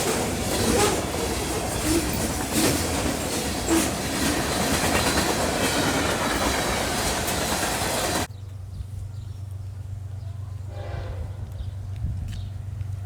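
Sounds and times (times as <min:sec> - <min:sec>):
train wheels rolling on rails: 0:00.0 - 0:08.3
wheels clacking over rail joints: 0:00.0 - 0:08.3.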